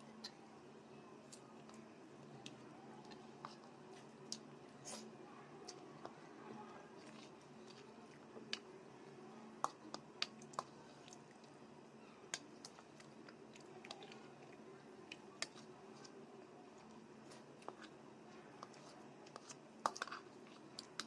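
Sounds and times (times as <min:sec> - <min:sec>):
soft chewing: 0:00.0 - 0:21.0.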